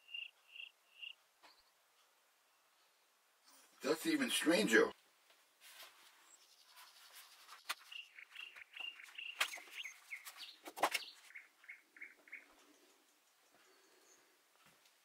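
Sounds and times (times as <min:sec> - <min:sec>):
small bird chirping: 0:00.0 - 0:01.8, 0:06.2 - 0:14.4.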